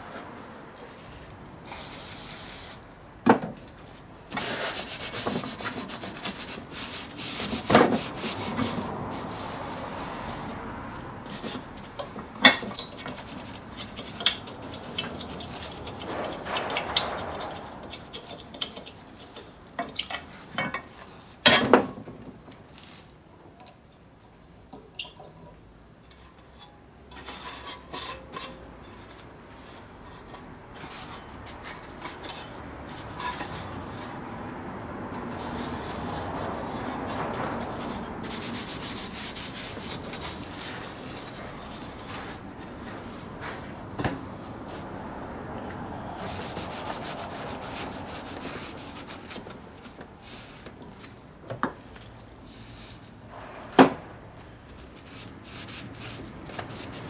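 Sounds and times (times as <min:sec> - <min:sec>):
scrubbing on metal: 0:04.3 - 0:20.3, 0:30.8 - 0:50.6
metal clinks and knocks: 0:12.4 - 0:20.9.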